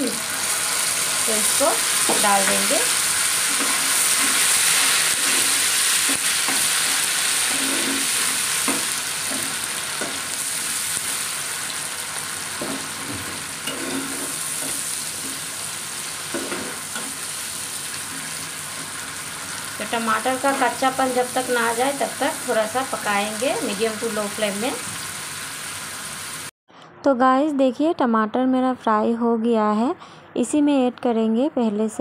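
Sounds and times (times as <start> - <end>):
tomato sizzling in oil: 0.0 - 26.5
spatula scraping pan: 1.9 - 10.3, 12.6 - 15.6.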